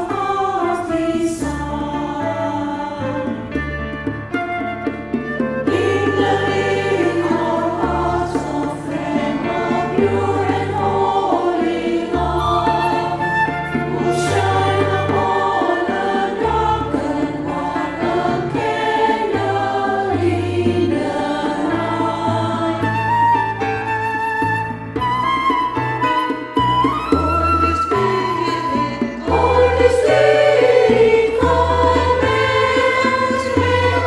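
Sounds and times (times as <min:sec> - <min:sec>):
women's choir singing gospel: 0:00.0 - 0:03.5, 0:05.7 - 0:23.4, 0:27.9 - 0:34.0
held bass notes: 0:29.0 - 0:34.0.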